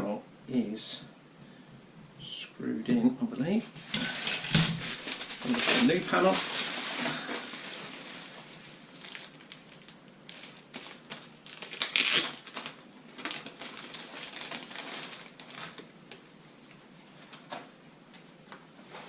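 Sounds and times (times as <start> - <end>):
plastic crinkling and rustling: 3.8 - 19.0.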